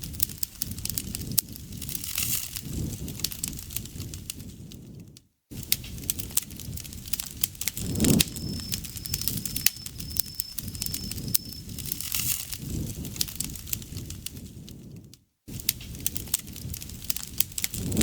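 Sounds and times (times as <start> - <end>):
campfire crackling and popping: 0.0 - 18.0
low rush of flames: 0.0 - 18.0
insect trilling: 7.8 - 12.1.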